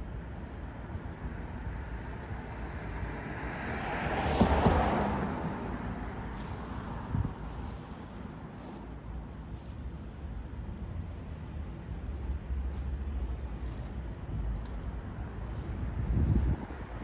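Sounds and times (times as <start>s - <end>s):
city traffic rumble: 0.0s - 17.0s
car passing by: 1.6s - 8.0s.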